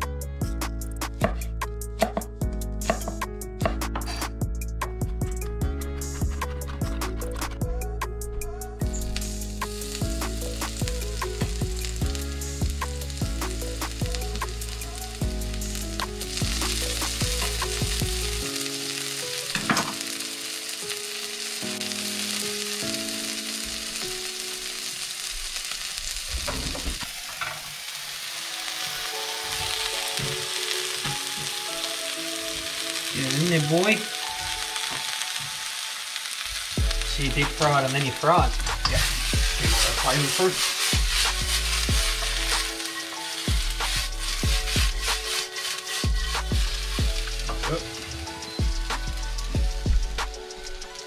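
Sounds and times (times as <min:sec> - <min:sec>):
background music with held notes: 0:00.0 - 0:25.1, 0:28.0 - 0:51.0
vegetables sizzling in a wok: 0:02.8 - 0:04.3, 0:08.8 - 0:51.0
metal utensil stirring: 0:38.8 - 0:48.6.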